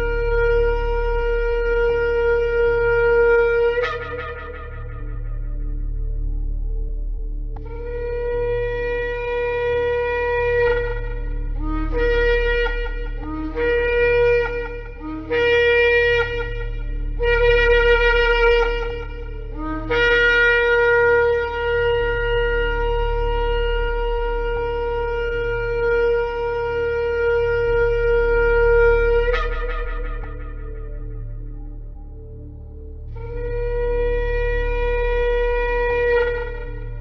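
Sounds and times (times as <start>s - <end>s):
steady low drone: 0.0s - 37.0s
ram's horn blasts: 7.5s - 32.5s.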